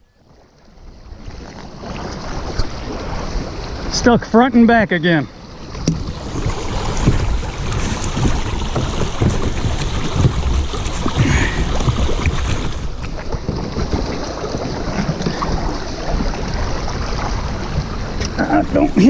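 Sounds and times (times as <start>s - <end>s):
shallow moving water: 0.0s - 19.0s
kayak hull scraping on rocks: 1.1s - 19.0s.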